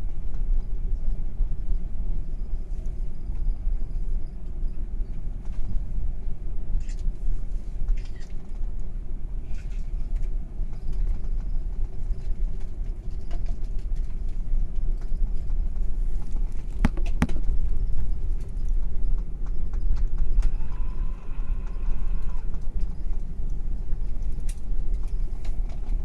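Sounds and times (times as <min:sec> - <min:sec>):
airplane cabin rumble: 0:00.0 - 0:26.0
light clicks and rattles: 0:07.8 - 0:20.6, 0:22.2 - 0:26.0.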